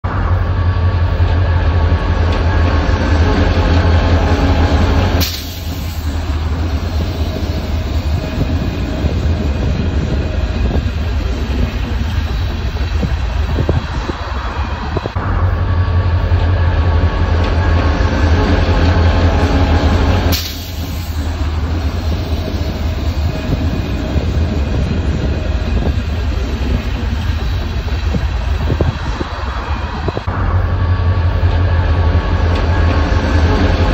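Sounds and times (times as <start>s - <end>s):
diesel train engine drone: 0.0s - 33.9s
train wheel clicks: 32.4s - 33.1s.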